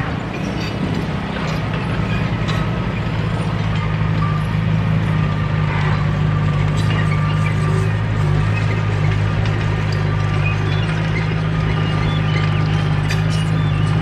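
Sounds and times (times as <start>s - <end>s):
bulldozer engine under load: 0.0s - 14.0s
light metal clanks: 0.3s - 4.0s.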